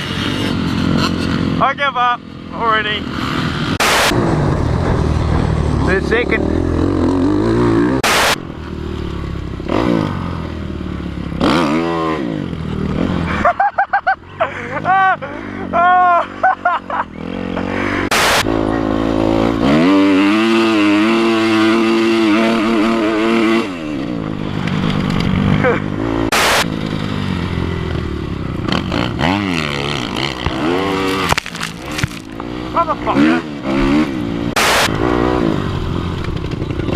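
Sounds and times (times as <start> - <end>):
motocross bike engine revving: 0.0 - 36.9
rush of noise: 3.6 - 8.6, 17.6 - 18.7, 25.4 - 27.8, 34.5 - 35.2.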